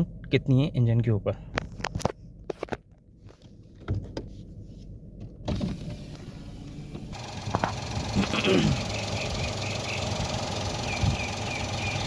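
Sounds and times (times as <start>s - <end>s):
car engine idling: 3.5s - 12.0s
car door opening: 5.2s - 8.1s
passing traffic: 5.4s - 12.0s.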